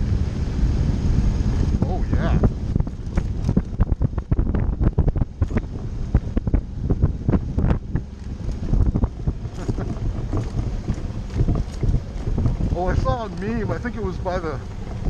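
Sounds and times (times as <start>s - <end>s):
motorcycle engine rumble: 0.0s - 15.0s
wind buffeting microphone: 0.0s - 15.0s
tyres crunching on gravel: 2.8s - 4.0s, 7.4s - 15.0s.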